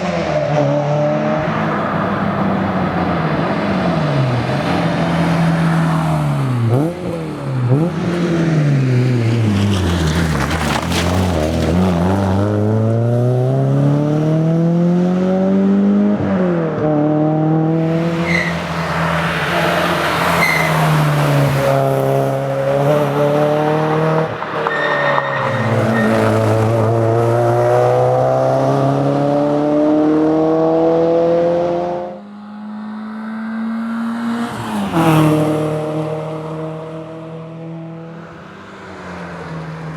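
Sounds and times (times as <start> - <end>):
car engine revving hard: 11.4 - 32.2.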